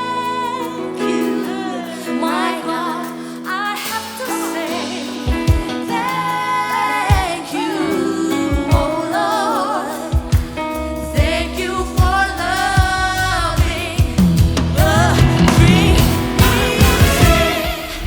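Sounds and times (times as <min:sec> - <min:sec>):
voices singing with vibrato: 0:00.0 - 0:18.0
band playing: 0:10.2 - 0:18.0
bass line: 0:10.4 - 0:18.0.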